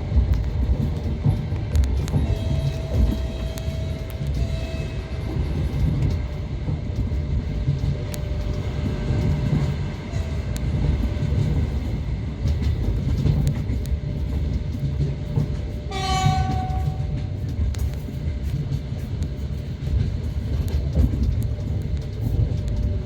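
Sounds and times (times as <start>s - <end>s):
train rumbling on rails: 0.0s - 23.0s
train horn blast: 2.1s - 5.3s, 15.8s - 17.3s.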